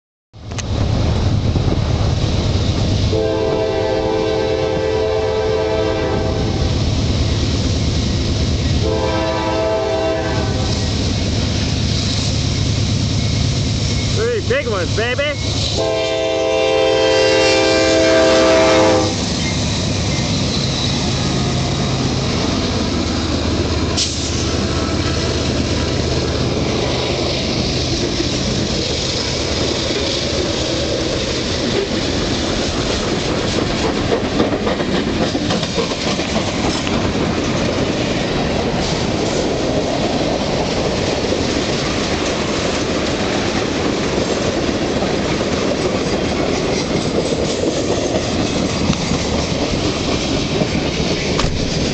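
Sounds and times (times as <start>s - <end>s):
locomotive engine hum: 0.4s - 51.9s
train wheels rolling: 0.4s - 51.9s
train horn: 3.1s - 6.7s, 8.8s - 10.9s, 15.8s - 19.2s
rail-joint clicking: 23.8s - 37.8s, 41.5s - 51.9s.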